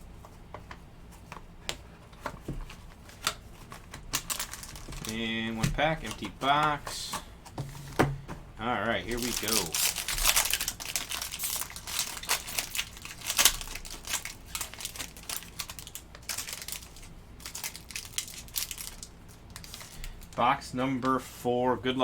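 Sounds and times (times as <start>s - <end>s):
wrapper crinkling as torn open: 3.7s - 6.3s, 9.0s - 20.3s.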